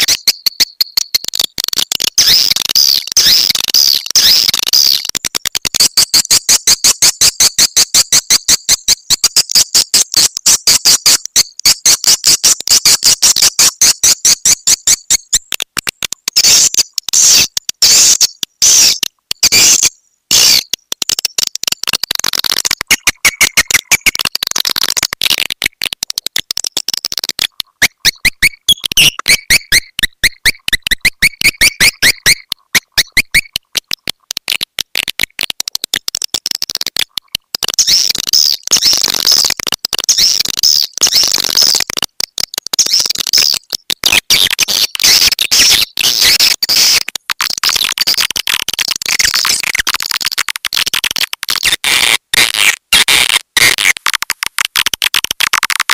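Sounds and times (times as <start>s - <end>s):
recorded swiftlet twittering: 0.0s - 5.2s, 16.3s - 25.4s, 26.1s - 34.6s, 37.7s - 39.5s, 40.1s - 50.5s.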